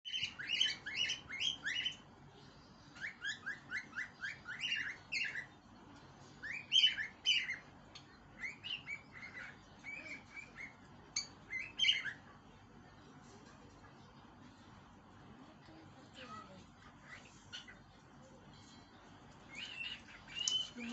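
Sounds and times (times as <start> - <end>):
parrot chirping: 0.1 - 2.2, 2.8 - 5.6, 6.4 - 12.4, 19.4 - 20.9.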